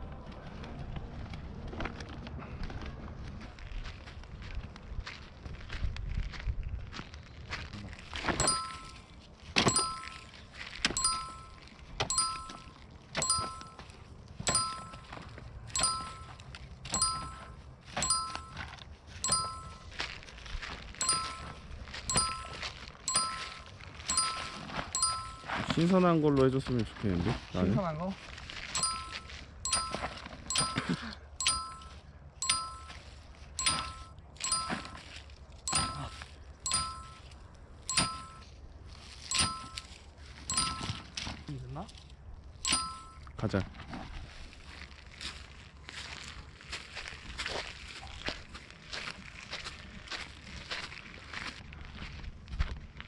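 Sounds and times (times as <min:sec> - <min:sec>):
metallic bell ding: 0:08.4 - 0:09.0, 0:09.6 - 0:10.3, 0:10.9 - 0:13.8, 0:14.5 - 0:15.2, 0:15.8 - 0:19.9, 0:21.0 - 0:25.7, 0:28.8 - 0:33.0, 0:33.6 - 0:35.0, 0:35.7 - 0:37.2, 0:37.9 - 0:38.4, 0:39.3 - 0:39.9, 0:40.5 - 0:41.1, 0:42.7 - 0:43.2.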